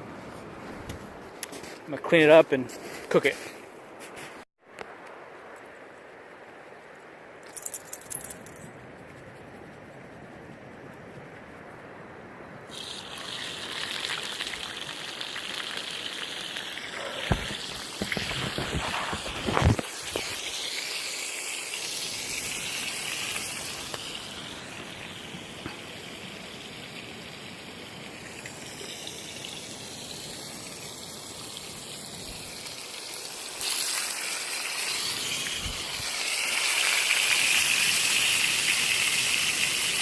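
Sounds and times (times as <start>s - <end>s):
river water running: 12.7s - 40.0s.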